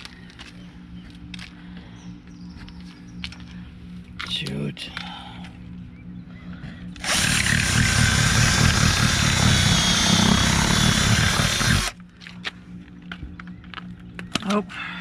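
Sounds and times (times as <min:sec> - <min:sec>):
power drill running: 0:07.0 - 0:12.0.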